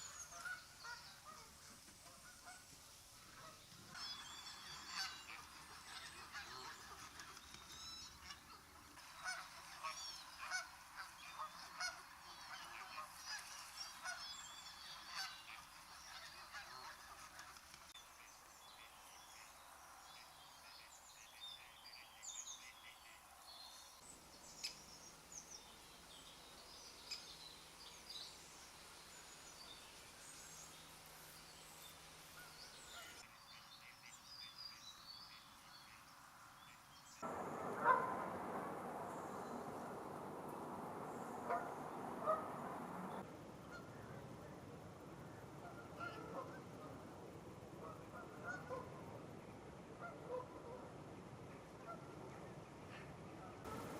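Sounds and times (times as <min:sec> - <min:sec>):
geese honking: 0:03.3 - 0:07.4, 0:08.2 - 0:17.5, 0:37.2 - 0:43.9, 0:47.8 - 0:49.0
other bird calls: 0:37.2 - 0:43.2.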